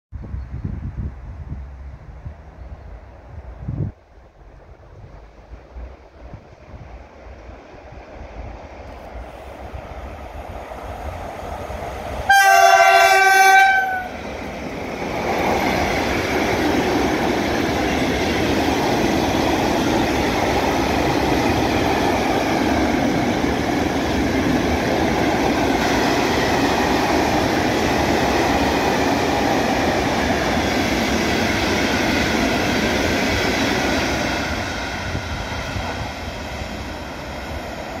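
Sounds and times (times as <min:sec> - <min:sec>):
train horn: 0:12.3 - 0:14.2.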